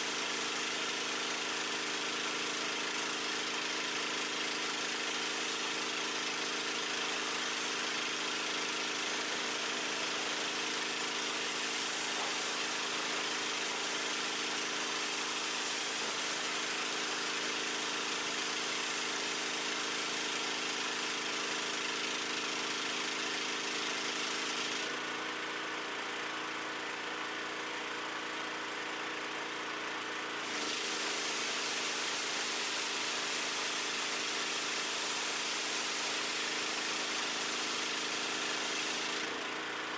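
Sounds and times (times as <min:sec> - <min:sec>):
pressure washer engine running: 0:00.0 - 0:39.9
water spray hissing: 0:09.3 - 0:19.4, 0:30.4 - 0:39.2.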